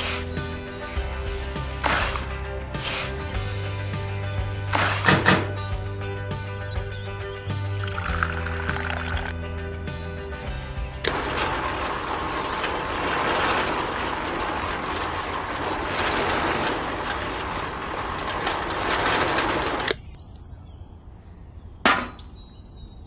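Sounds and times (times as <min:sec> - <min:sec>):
miniature concrete mixer rattling: 0:07.7 - 0:09.4, 0:11.0 - 0:20.0
sharp knock: 0:21.8 - 0:22.3.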